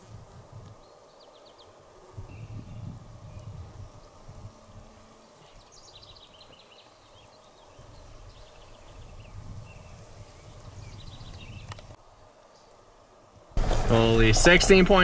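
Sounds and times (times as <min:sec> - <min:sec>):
wind rumble on microphone: 0:00.0 - 0:00.9, 0:02.1 - 0:06.3, 0:07.7 - 0:12.0
songbird singing: 0:00.8 - 0:12.8.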